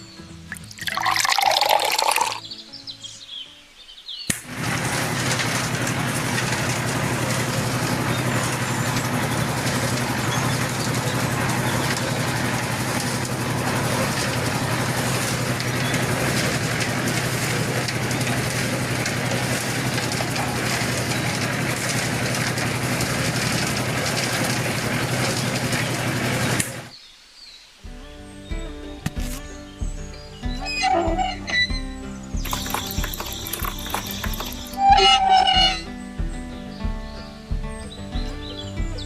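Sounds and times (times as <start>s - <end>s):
machine humming steadily: 4.5s - 26.9s.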